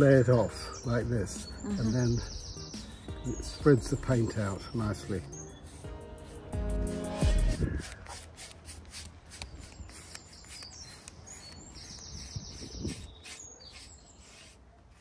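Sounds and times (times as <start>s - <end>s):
small birds chirping: 0.0s - 6.5s, 7.5s - 15.0s.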